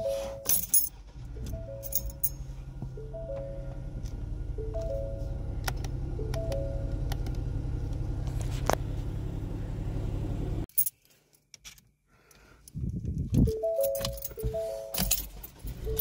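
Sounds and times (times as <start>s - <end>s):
door-ajar warning chime: 0.0s - 0.5s, 1.4s - 3.9s, 4.5s - 5.4s, 6.2s - 7.0s, 13.5s - 15.2s
car engine idling: 0.0s - 10.7s.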